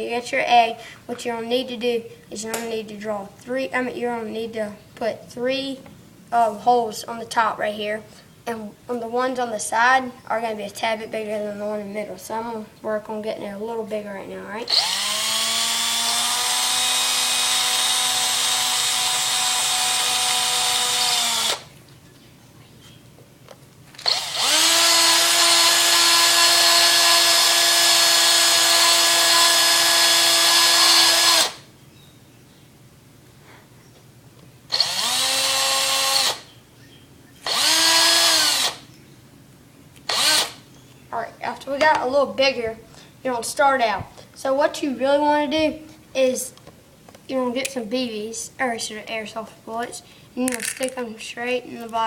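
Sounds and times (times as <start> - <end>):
electric drill whining: 14.7 - 21.7, 24.0 - 31.7, 34.7 - 36.5, 37.4 - 38.9, 40.0 - 40.6.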